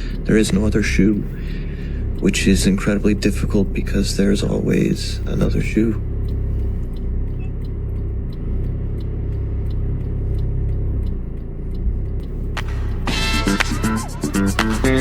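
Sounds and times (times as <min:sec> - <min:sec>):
car driving on road: 0:00.0 - 0:15.0
guitar music: 0:12.3 - 0:15.0.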